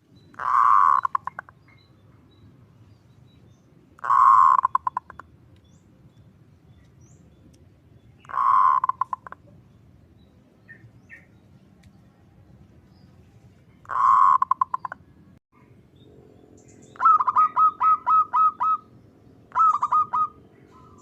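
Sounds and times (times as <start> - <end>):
dove cooing: 0.4 - 1.4, 4.0 - 5.2, 8.2 - 9.4, 13.9 - 15.0, 17.0 - 18.9, 19.5 - 21.0.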